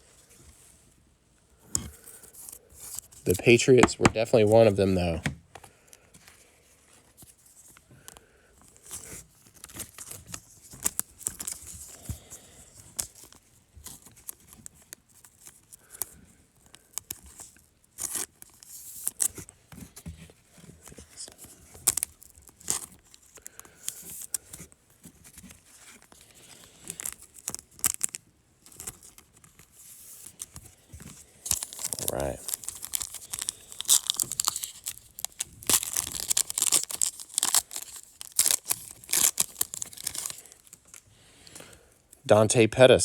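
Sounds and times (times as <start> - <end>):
cards clicking and rustling: 1.8 - 6.4, 7.2 - 16.1, 20.8 - 41.7
wrappers tearing and crinkling: 8.6 - 19.5, 20.5 - 42.2.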